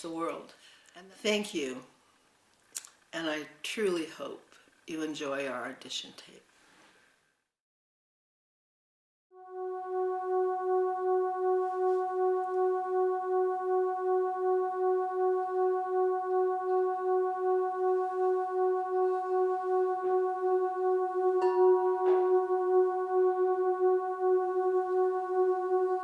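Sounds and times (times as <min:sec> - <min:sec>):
crystal singing bowl tone: 0:09.4 - 0:26.0.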